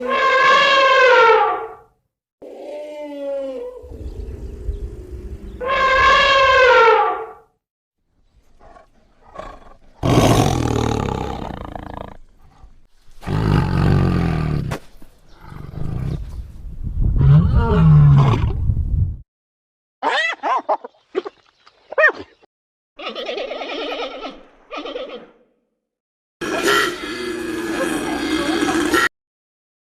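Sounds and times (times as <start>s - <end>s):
large animal roaring: 8.6s - 14.7s.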